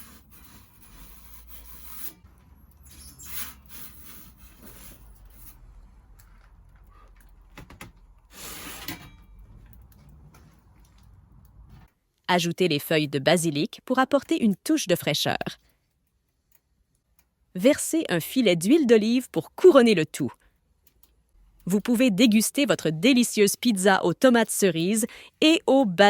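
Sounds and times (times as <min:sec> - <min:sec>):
pizza peel scraping oven stone: 0:00.0 - 0:02.2.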